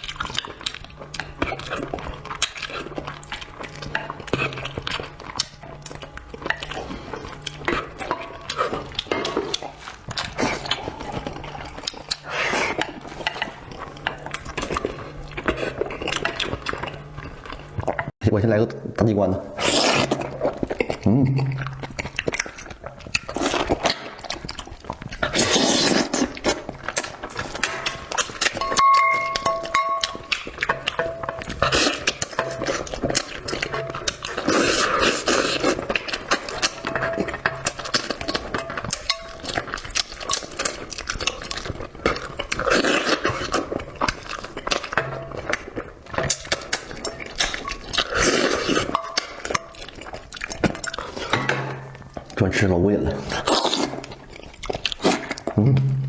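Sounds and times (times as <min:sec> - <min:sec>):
wet chewing and slurping: 0:00.0 - 0:56.0
mouth clicks and smacks: 0:19.6 - 0:52.4, 0:53.2 - 0:56.0.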